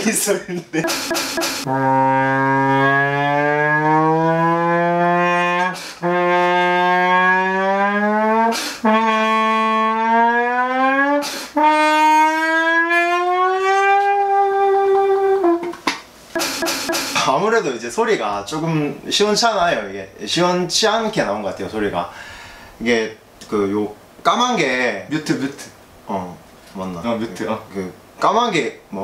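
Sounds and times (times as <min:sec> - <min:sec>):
muted trombone sliding notes: 0:00.8 - 0:17.5.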